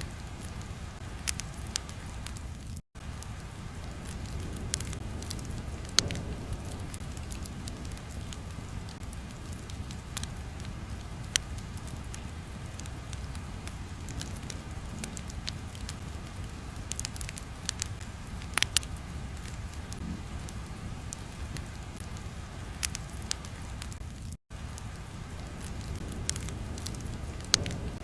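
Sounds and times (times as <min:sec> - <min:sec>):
pops and clicks: 0:16.8 - 0:20.0.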